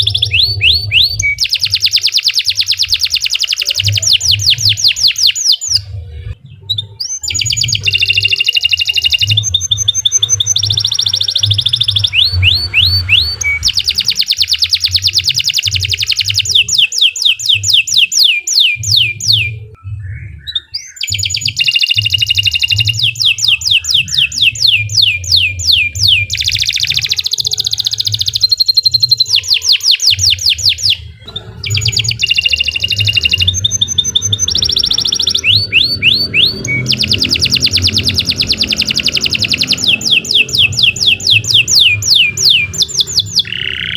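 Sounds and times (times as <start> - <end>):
canary singing trills: 0.0 - 43.9.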